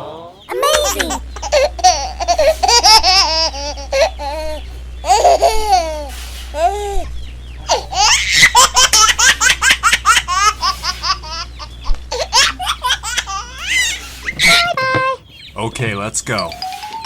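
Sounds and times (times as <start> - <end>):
baby laughing and giggling: 0.5 - 7.1, 7.7 - 11.5, 12.1 - 15.2.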